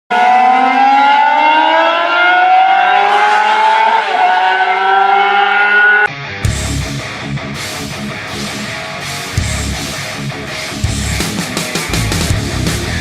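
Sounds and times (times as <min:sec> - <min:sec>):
racing motorcycle accelerating: 0:00.1 - 0:13.0
guitar music: 0:06.1 - 0:13.0.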